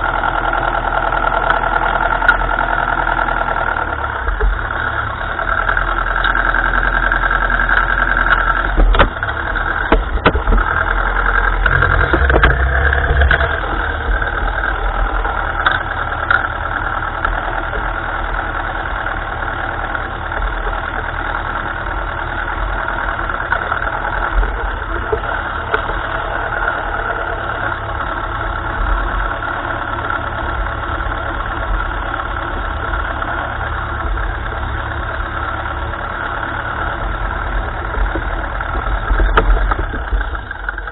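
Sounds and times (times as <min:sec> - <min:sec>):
tractor engine running: 0:00.0 - 0:40.9
sharp knocks: 0:08.7 - 0:10.7, 0:11.7 - 0:13.5.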